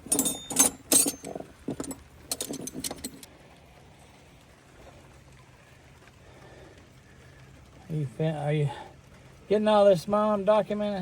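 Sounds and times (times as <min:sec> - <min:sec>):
metal clinking and rattling: 0:00.0 - 0:03.3.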